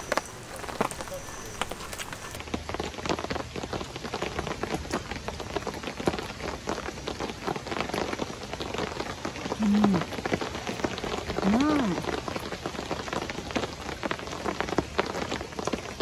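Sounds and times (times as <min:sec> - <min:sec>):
heavy rain on a tarp: 0:00.0 - 0:16.0
person humming: 0:09.6 - 0:10.1.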